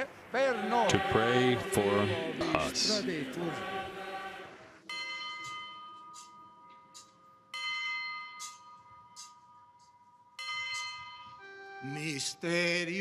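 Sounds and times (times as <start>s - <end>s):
altar bell ringing: 4.9s - 12.3s.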